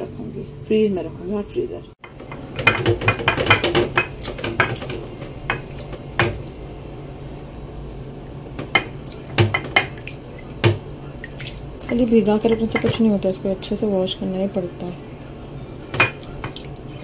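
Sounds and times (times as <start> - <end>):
steady low hum: 0.0 - 17.0
dishes clinking and knocking: 2.0 - 6.5, 8.6 - 10.9, 11.8 - 13.2, 15.9 - 16.7.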